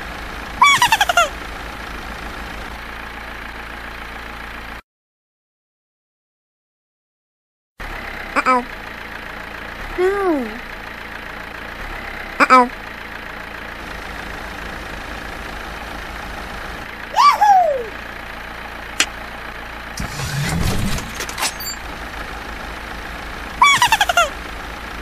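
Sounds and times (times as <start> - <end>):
cartoon car engine: 0.0 - 4.8, 7.8 - 25.0
high-pitched cartoon voice cries: 0.6 - 1.3, 10.0 - 10.6, 17.1 - 18.0, 23.6 - 24.4.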